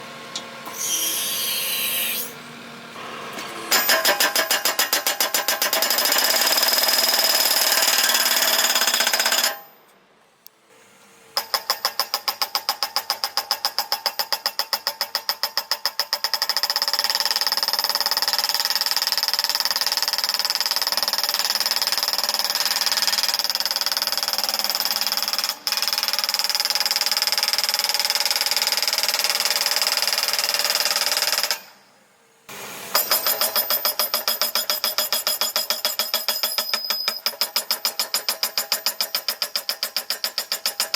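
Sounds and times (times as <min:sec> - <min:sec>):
post driver hammering metal: 0:03.7 - 0:06.4, 0:32.9 - 0:40.9.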